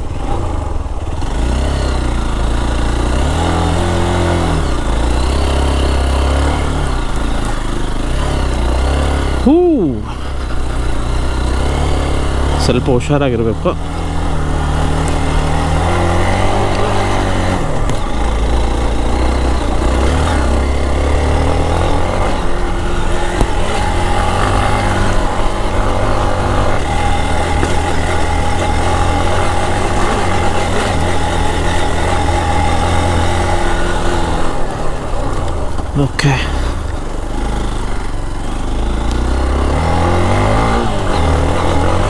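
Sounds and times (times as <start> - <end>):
motorcycle engine revving under load: 0.0 - 42.0.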